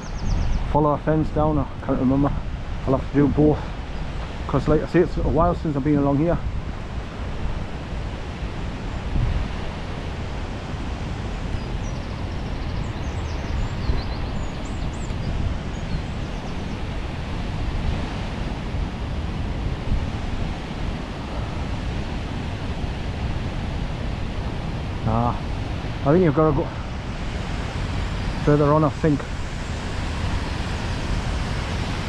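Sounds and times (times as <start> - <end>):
faint bird chirps: 0.0 - 0.8, 11.4 - 16.8
wind buffeting microphone: 0.0 - 32.0
waterfall roaring: 0.8 - 32.0.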